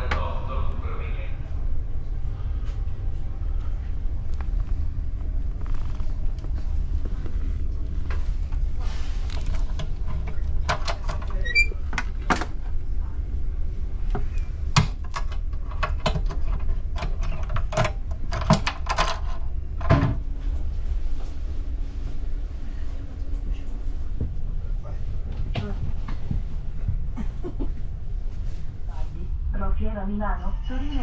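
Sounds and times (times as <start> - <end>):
train coach low rumble: 0.0 - 31.0
clicks and knocks in cabin: 9.3 - 12.6, 14.1 - 20.2.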